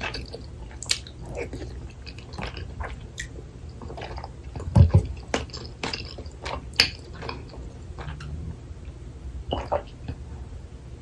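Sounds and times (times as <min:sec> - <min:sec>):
wet chewing and mouth smacks: 0:00.0 - 0:08.4.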